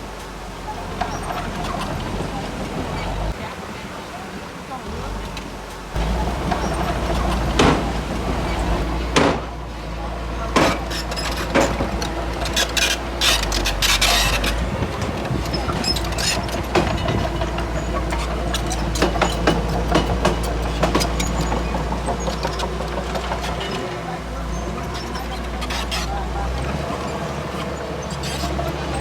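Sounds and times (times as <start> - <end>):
heavy diesel machinery rumbling: 0.0 - 29.0
machine clanking and knocking: 6.0 - 29.0.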